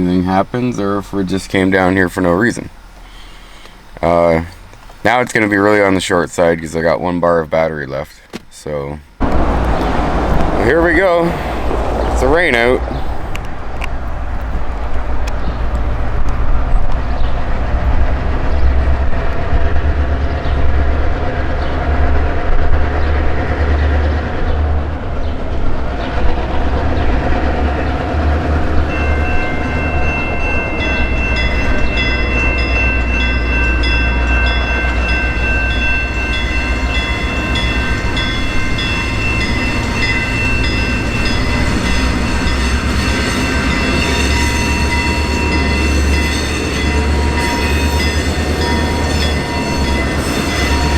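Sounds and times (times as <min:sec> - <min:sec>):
train rumbling past: 0:09.2 - 0:50.9
high-pitched wheel squeal: 0:34.8 - 0:50.9.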